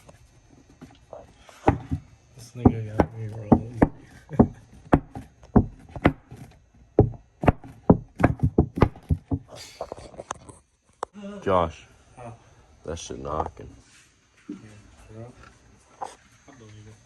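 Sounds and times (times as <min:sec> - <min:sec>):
sharp knocks: 0:01.6 - 0:02.0, 0:02.6 - 0:09.6.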